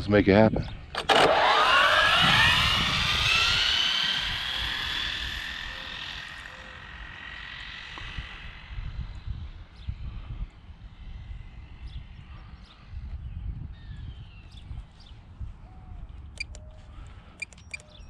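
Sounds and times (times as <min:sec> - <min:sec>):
rc car electric motor whining: 0:01.0 - 0:09.3.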